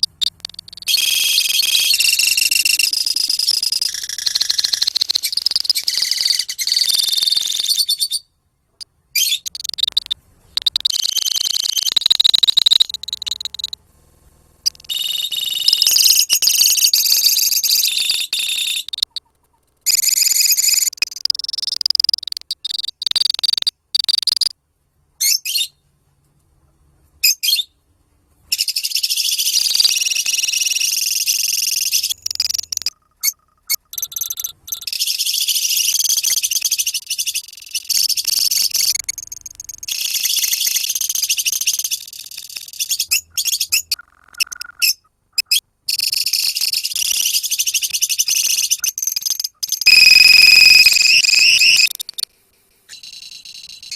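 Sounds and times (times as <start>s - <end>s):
lovebirds chirping: 0.0s - 8.3s, 9.1s - 13.8s.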